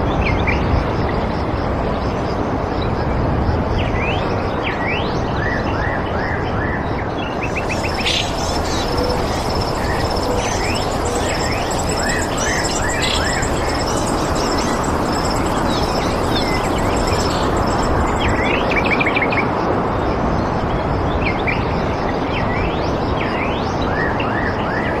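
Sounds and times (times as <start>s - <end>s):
rushing background noise: 0.0s - 23.5s
songbirds chirping: 7.4s - 18.9s
bird trill: 7.4s - 19.2s
high rapidly repeated note: 7.5s - 18.8s.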